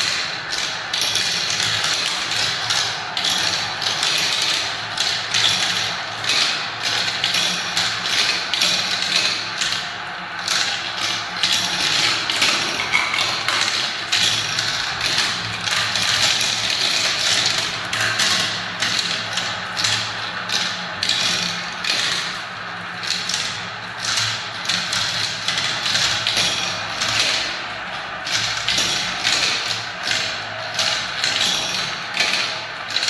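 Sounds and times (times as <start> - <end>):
marbles clattering down a track: 11.8 - 15.1.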